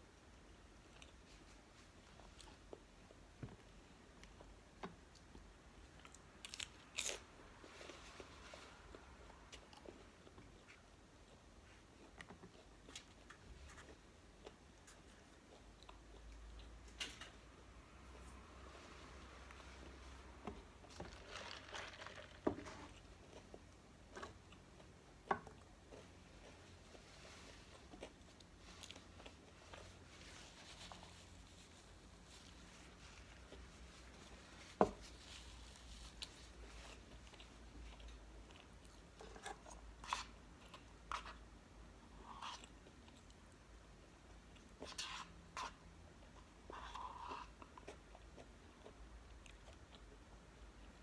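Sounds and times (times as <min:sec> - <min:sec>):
rustling: 0:18.2 - 0:23.1, 0:26.5 - 0:37.6.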